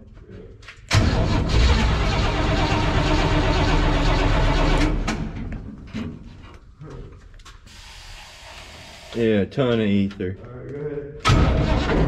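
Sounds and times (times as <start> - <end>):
engine starting and running loudly: 0.9 - 5.5, 11.3 - 12.0.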